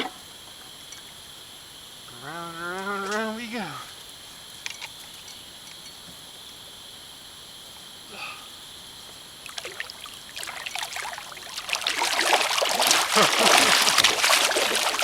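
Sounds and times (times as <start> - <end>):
steady background hiss: 0.0 - 15.0
water splashing around kayak: 9.4 - 15.0.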